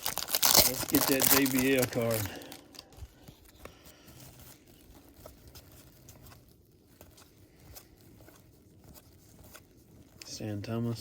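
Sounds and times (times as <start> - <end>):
wrapper crinkling: 0.0 - 10.4
cards shuffling and sliding: 2.9 - 10.4.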